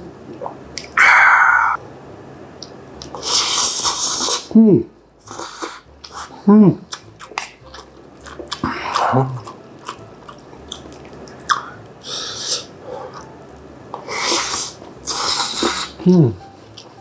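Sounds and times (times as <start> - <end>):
close chewing with crisp crunches: 5.3 - 13.4, 14.0 - 17.0.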